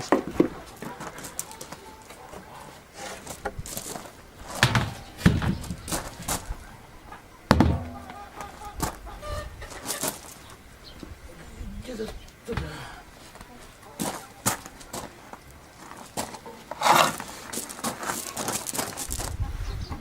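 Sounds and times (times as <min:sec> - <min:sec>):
poultry calling faintly: 0:00.0 - 0:03.4, 0:04.9 - 0:11.7
loud knocks: 0:04.6 - 0:05.8, 0:07.5 - 0:08.2.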